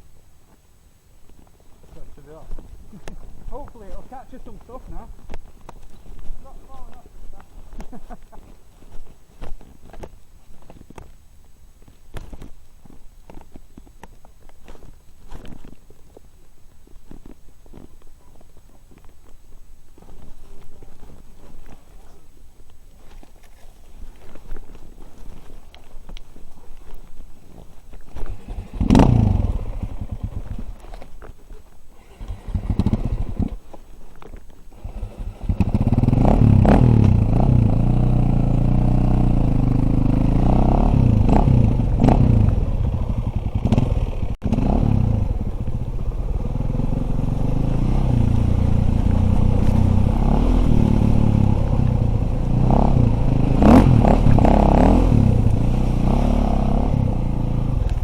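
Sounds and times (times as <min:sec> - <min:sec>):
dirt bike engine revving: 0:28.2 - 0:30.9, 0:32.0 - 0:33.6, 0:34.7 - 0:58.0.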